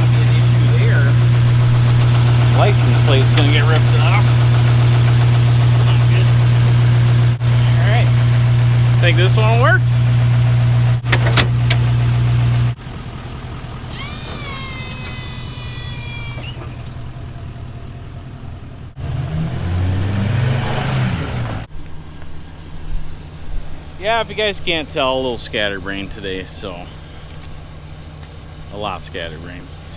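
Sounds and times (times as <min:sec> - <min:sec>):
truck machinery hum: 0:00.0 - 0:29.9
wavering machinery drone: 0:00.1 - 0:07.4, 0:13.8 - 0:17.0.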